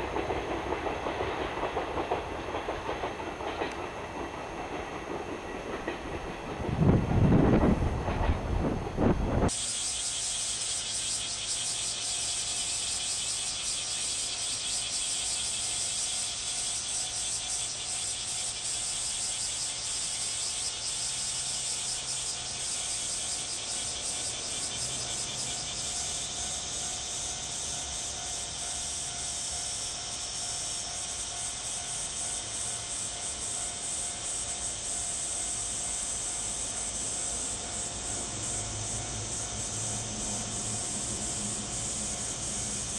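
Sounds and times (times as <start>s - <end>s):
freight train rumbling: 0.0s - 42.9s
high-pitched hiss: 9.0s - 42.9s.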